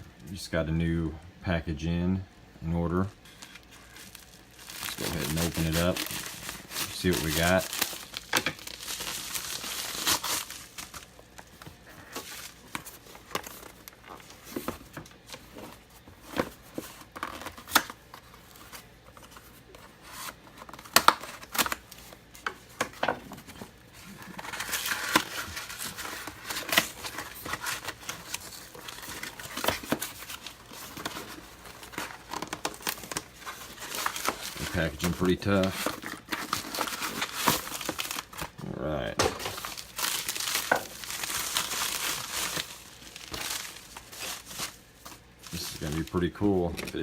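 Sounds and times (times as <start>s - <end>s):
packaging tearing and crinkling: 3.3s - 47.0s.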